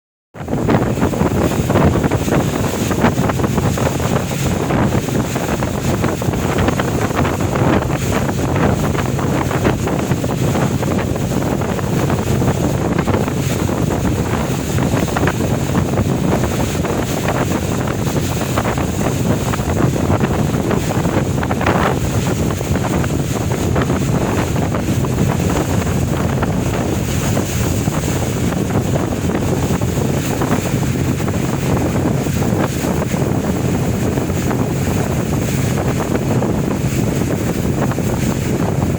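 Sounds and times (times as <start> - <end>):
boat engine running: 0.3 - 38.9
water washing around hull: 0.3 - 38.9
wind buffeting microphone: 0.3 - 38.9.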